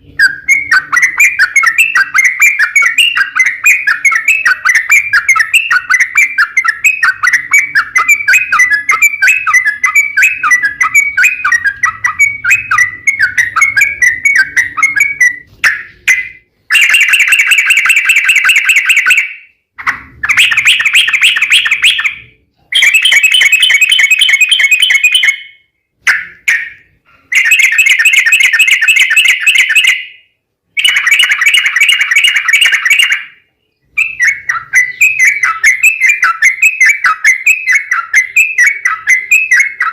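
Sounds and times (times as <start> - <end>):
bulbul chattering song: 0.0 - 39.9.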